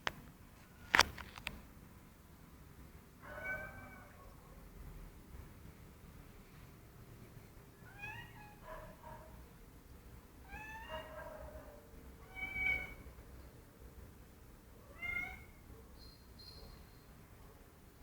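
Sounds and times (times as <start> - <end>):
cat meowing: 3.2 - 4.2, 7.8 - 8.6, 10.5 - 11.1, 12.2 - 13.0, 14.9 - 15.6.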